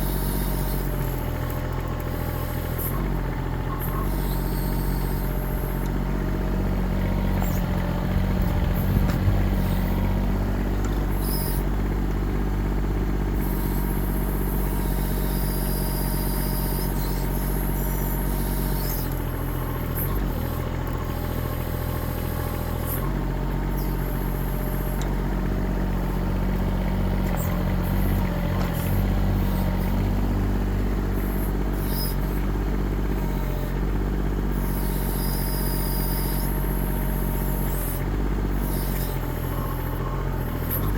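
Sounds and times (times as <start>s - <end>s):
diesel engine running: 0.0s - 40.9s
engine knocks: 3.0s - 13.4s.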